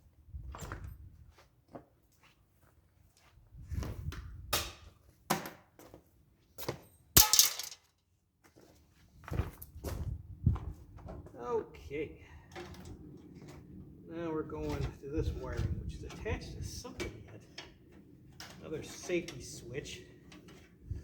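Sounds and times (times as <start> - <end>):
hand tools clicking on metal: 16.1 - 20.7.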